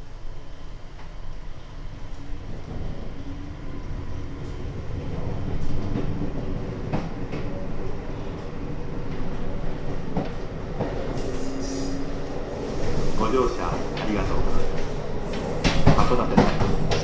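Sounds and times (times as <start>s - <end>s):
train low rumble: 0.0s - 17.0s
wheels clacking over rail joints: 12.2s - 17.0s.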